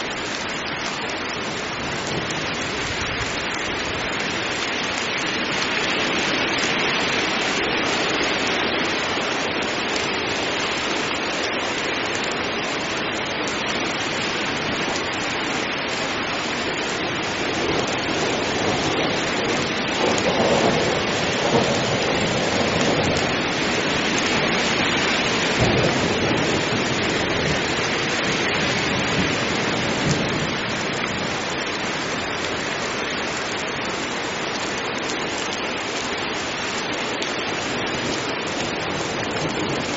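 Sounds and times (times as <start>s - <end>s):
heavy rain falling: 0.0s - 39.9s
thunder rumble: 17.6s - 31.4s.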